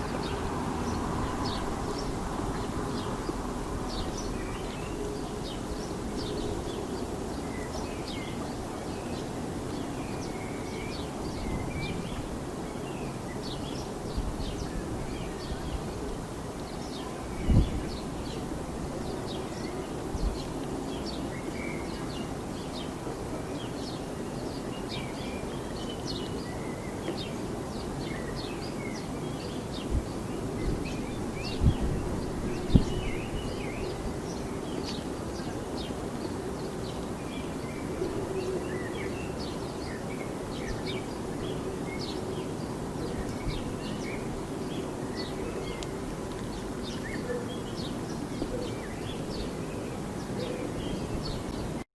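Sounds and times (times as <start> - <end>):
road traffic rumble: 0.0 - 24.6
small birds chirping: 0.0 - 51.8.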